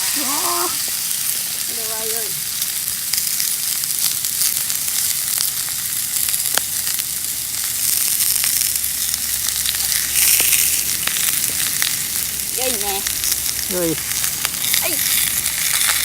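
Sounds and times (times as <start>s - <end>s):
steak sizzling on a griddle: 0.0s - 16.0s
spitting pops of fat: 7.9s - 12.5s.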